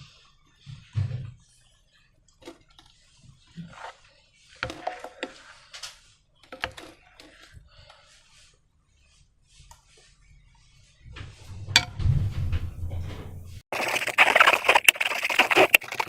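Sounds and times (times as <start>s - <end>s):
slime squelching: 13.7s - 16.0s.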